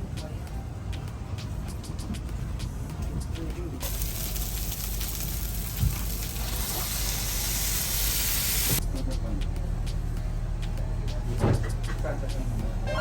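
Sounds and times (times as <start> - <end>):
boat engine humming: 3.8 - 8.8
loud steady hiss: 3.8 - 8.8.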